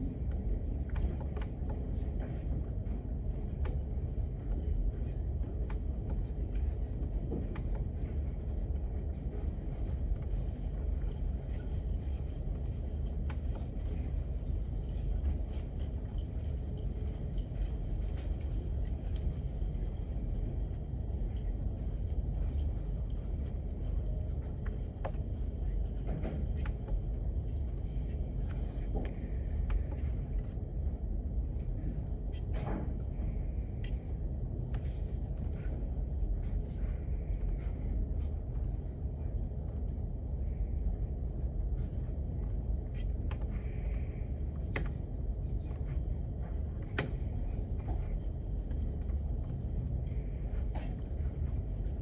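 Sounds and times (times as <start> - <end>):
low room rumble: 0.0 - 52.0
light clicks and taps: 0.2 - 30.8, 41.9 - 52.0.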